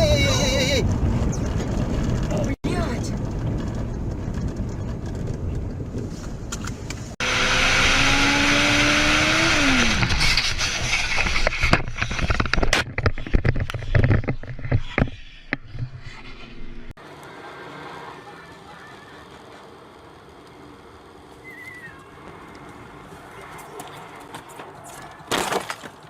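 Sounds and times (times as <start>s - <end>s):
road and engine noise: 0.0s - 26.0s
engine tone rising and falling: 7.2s - 11.1s.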